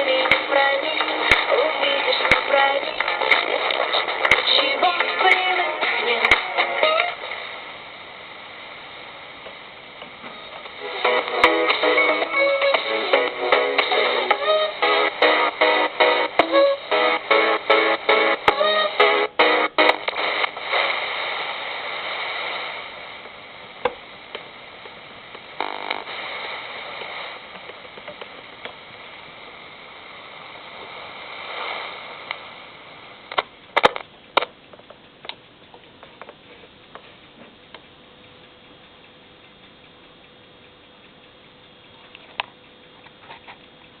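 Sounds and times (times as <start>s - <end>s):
radio static hiss: 0.0s - 44.0s
sharp clicks and crackles: 23.2s - 28.8s, 33.3s - 44.0s.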